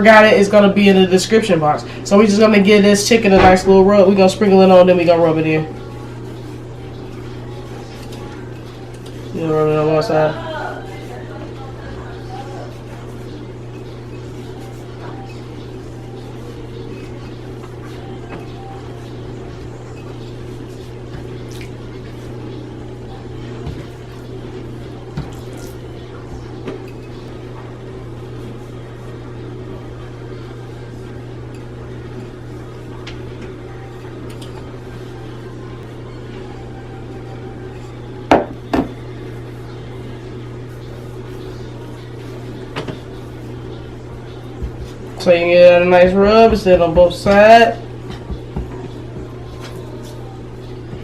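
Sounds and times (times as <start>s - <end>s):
steady low hum: 0.0s - 51.0s
loud knocks on kitchen counter: 38.3s - 38.9s.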